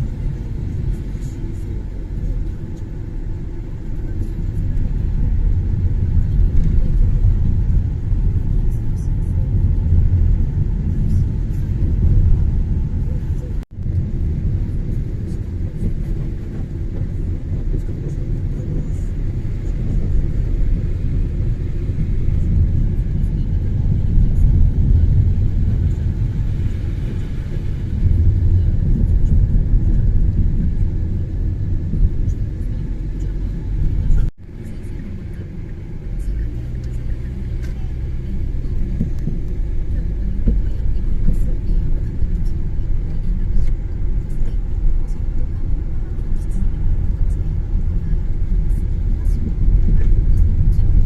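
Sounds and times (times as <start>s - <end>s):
car engine and tyres rumbling: 0.0s - 51.0s.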